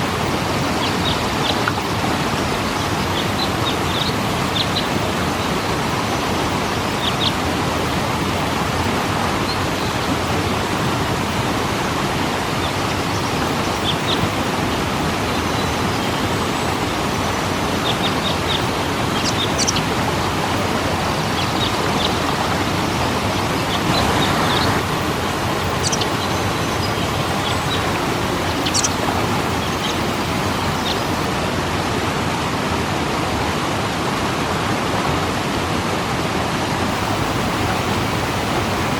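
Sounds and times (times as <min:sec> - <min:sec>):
waterfall roaring: 0:00.0 - 0:38.9
high bird chirps: 0:25.6 - 0:31.2.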